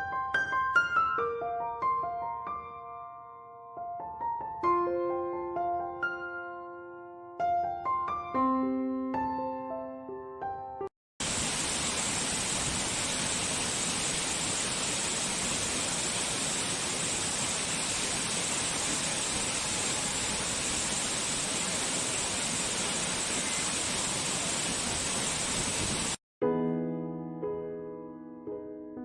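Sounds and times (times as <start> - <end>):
waterfall rushing: 11.2 - 26.2.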